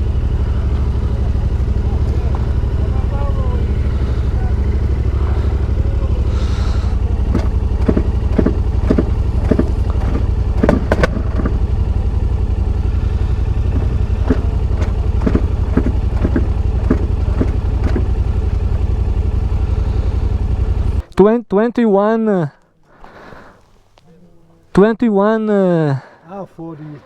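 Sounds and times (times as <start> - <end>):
motorcycle engine idling: 0.0 - 21.0
sharp clicks and knocks: 7.3 - 11.7, 13.7 - 18.2.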